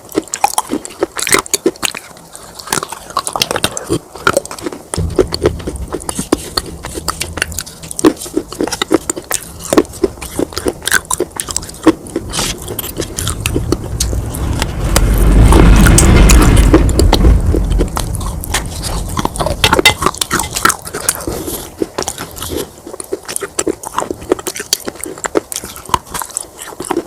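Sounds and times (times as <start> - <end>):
crunching and chewing clay pieces: 0.0 - 27.0
steady low hum: 0.0 - 27.0
loud low rumble: 5.0 - 21.7.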